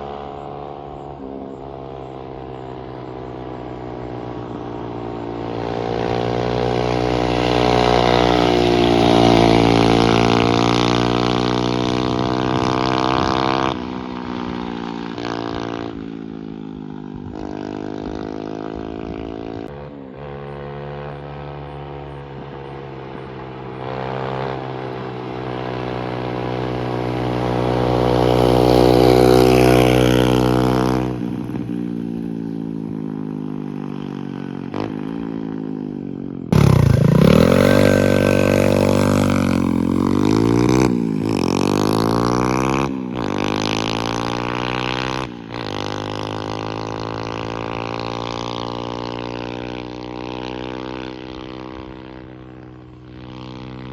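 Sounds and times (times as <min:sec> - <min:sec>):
mini bike engine revving: 0:00.0 - 0:53.9.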